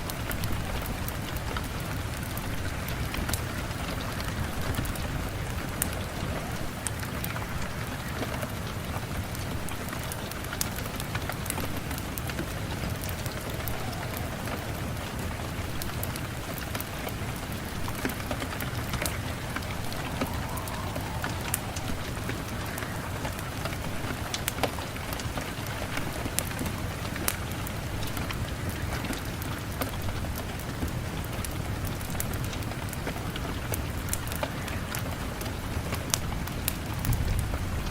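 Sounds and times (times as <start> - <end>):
steady rain: 0.0 - 37.9
wood fire crackling: 0.0 - 37.9
low rumble: 12.5 - 25.4.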